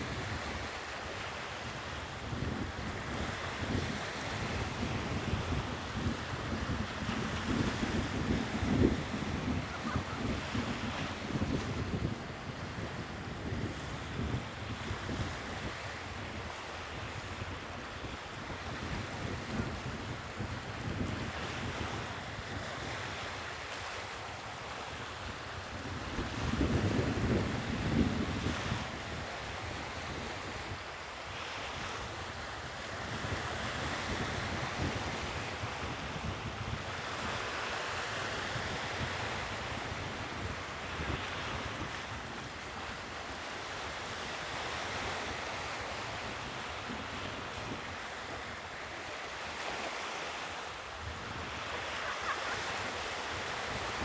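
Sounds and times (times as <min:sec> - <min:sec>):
sea waves breaking: 0:00.0 - 0:54.0
wind buffeting microphone: 0:01.7 - 0:23.6, 0:24.7 - 0:30.9, 0:31.8 - 0:48.8, 0:51.0 - 0:54.0.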